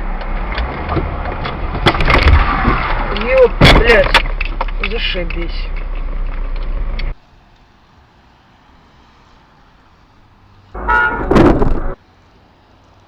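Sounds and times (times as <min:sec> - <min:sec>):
car driving hum: 0:10.5 - 0:12.0
car horn: 0:10.8 - 0:12.0.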